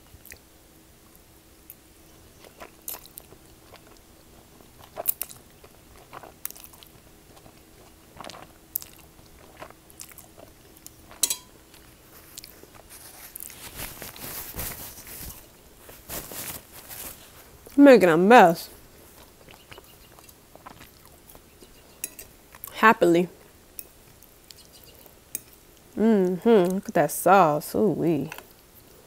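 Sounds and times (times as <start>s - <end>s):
chewing and wet mouth sounds: 0.1s - 0.5s, 1.1s - 16.0s, 18.5s - 22.8s, 23.4s - 26.8s
paper napkin rustling: 11.9s - 17.6s.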